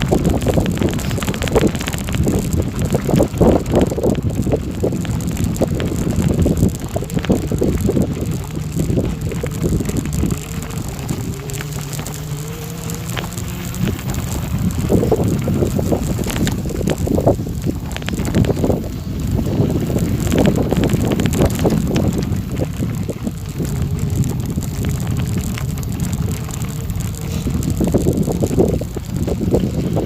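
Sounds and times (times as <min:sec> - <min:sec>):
tyres rolling on gravel: 0:00.0 - 0:30.0
wind buffeting microphone: 0:00.0 - 0:30.0.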